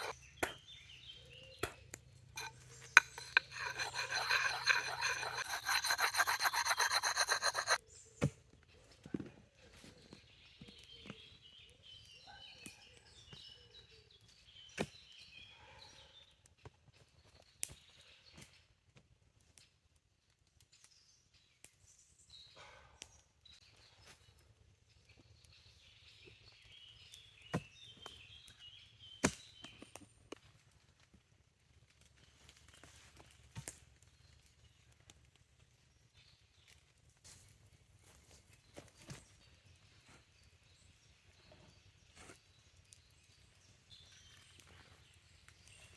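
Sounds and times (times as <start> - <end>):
small birds chirping: 38.1 - 45.9.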